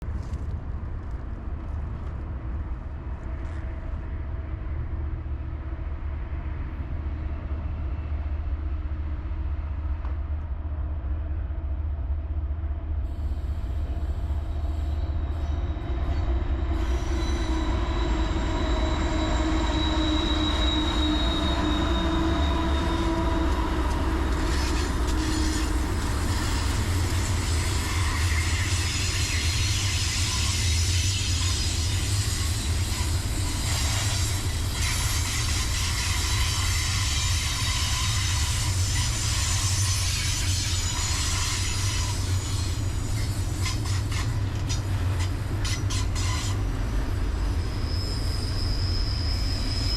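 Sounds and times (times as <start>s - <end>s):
freight train rumbling by: 0.0s - 49.9s
steel wheel squeal: 14.5s - 49.9s.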